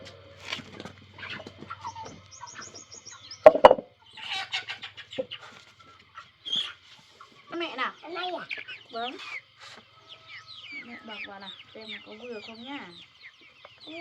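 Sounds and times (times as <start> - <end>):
chickens clucking: 0.0 - 14.0
small birds chirping: 0.0 - 14.0
sharp knocks: 3.4 - 3.9.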